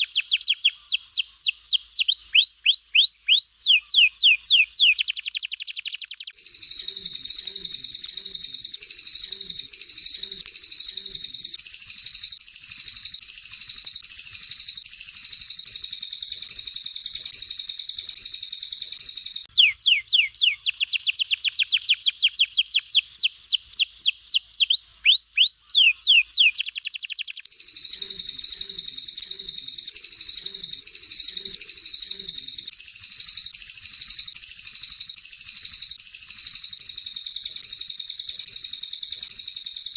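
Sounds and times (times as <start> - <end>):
canary trilling: 0.0 - 14.9, 19.4 - 32.7
bird whistling downward notes: 0.0 - 16.6, 17.3 - 37.6.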